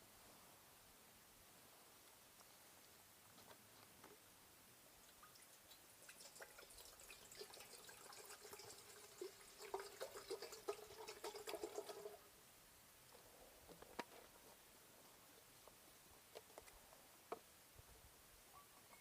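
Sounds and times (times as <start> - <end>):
water pouring into a vessel: 5.2 - 12.2.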